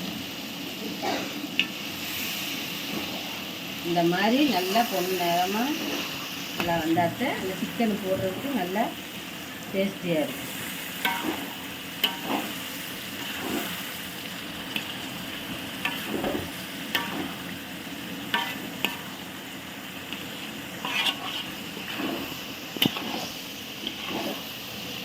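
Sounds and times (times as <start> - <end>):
masala sizzling in hot oil: 0.0 - 25.0
ladle scraping pan: 10.4 - 13.9, 15.8 - 17.5, 18.3 - 19.2, 20.1 - 24.6.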